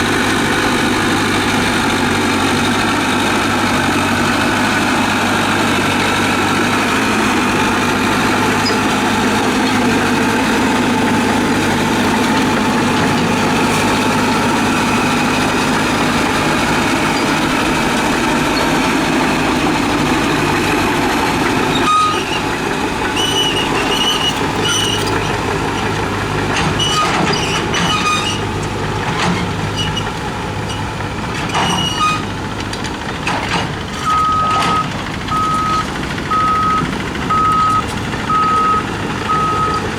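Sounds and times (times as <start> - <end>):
diesel engine running: 0.0 - 39.9
reversing alarm beeping: 21.7 - 22.5, 34.0 - 39.9
metal knocks and clanks: 30.7 - 35.0.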